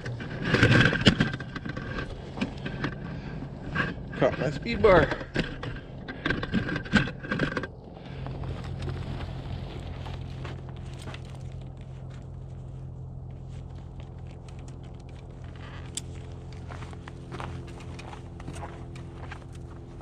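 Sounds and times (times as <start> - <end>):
gear scraping and rustling: 0.0 - 20.0
steady engine hum: 0.0 - 20.0.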